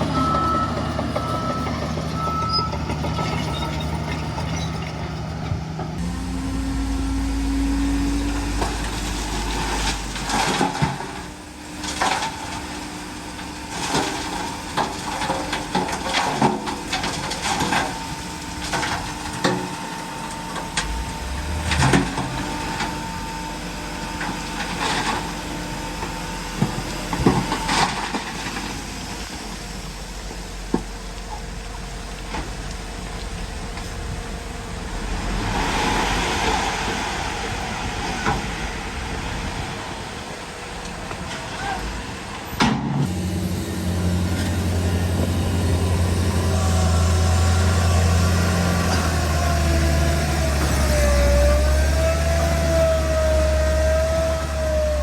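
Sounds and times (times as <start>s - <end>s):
diesel engine hum: 0.0s - 55.0s
rushing swell: 6.0s - 10.4s, 20.0s - 24.1s, 34.3s - 41.3s.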